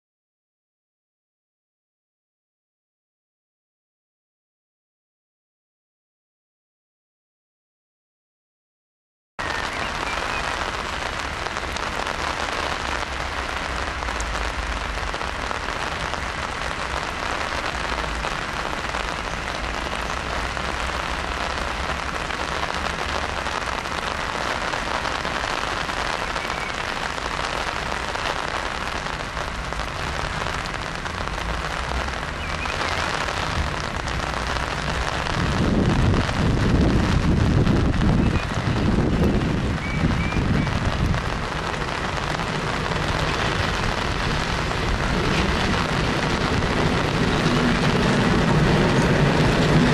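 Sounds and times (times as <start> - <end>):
steady rain hiss: 9.4 - 49.9
deep rumble: 42.3 - 49.9.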